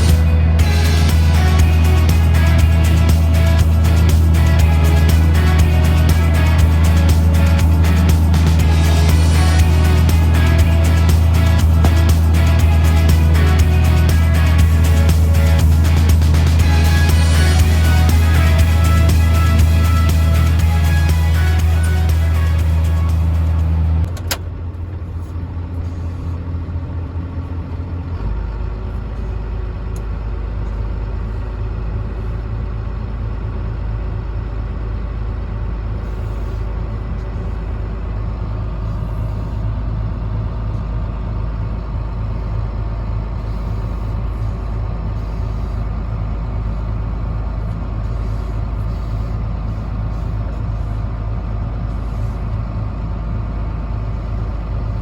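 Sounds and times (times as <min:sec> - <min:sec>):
background music: 0:00.0 - 0:24.1
combine harvester engine: 0:00.0 - 0:55.0.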